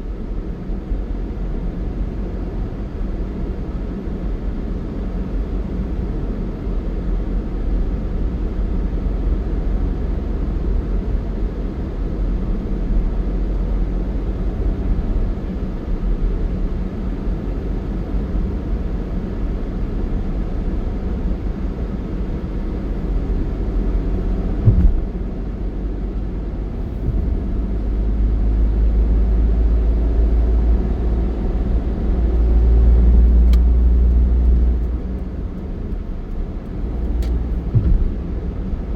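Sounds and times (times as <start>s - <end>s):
vehicle road noise rumble: 0.0s - 38.9s
brief thump: 24.6s - 25.2s, 26.8s - 27.5s, 37.1s - 38.2s.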